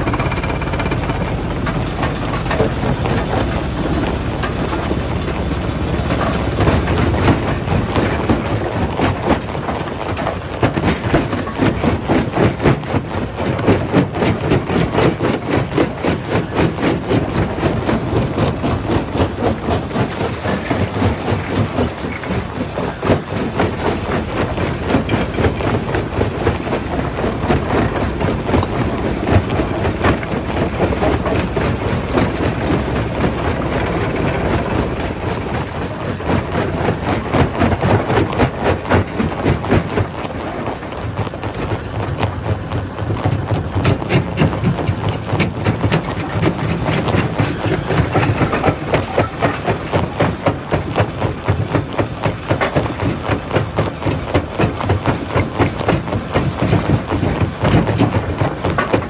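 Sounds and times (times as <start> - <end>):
diesel engine running: 0.0 - 59.0
stone rattling through crusher: 43.6 - 59.0.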